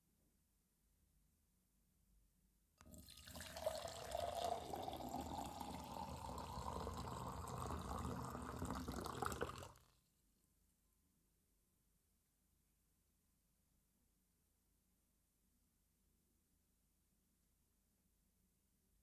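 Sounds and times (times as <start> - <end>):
water running: 2.8 - 9.8.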